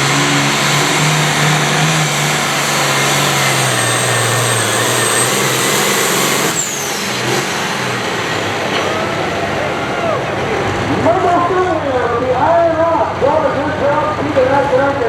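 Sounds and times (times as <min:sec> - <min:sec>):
vehicle engine at high revs: 0:00.0 - 0:09.8.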